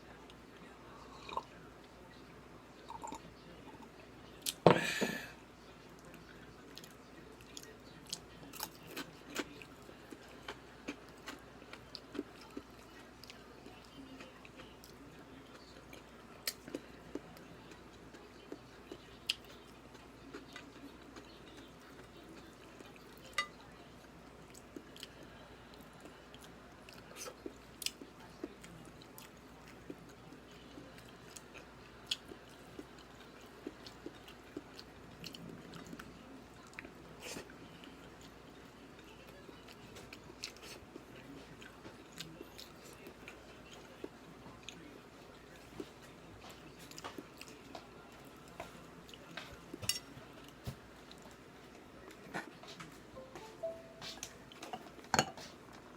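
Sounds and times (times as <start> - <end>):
person chewing and eating: 6.7 - 23.6.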